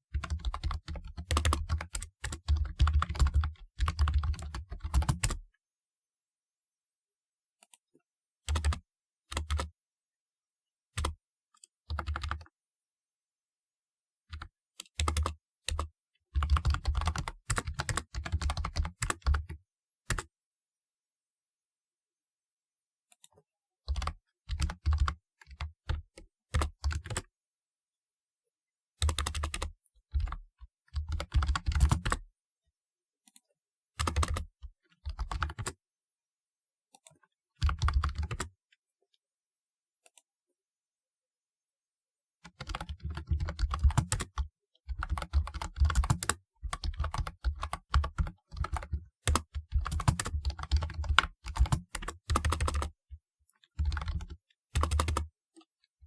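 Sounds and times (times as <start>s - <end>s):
keyboard typing clicks: 42.6s - 52.9s, 53.8s - 55.3s.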